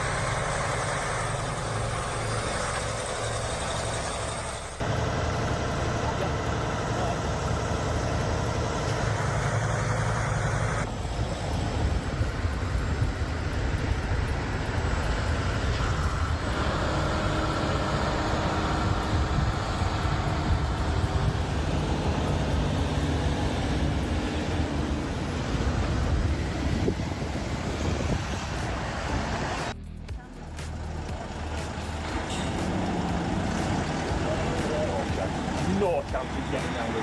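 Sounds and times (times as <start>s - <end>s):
vehicle engine and road noise: 0.0s - 37.0s.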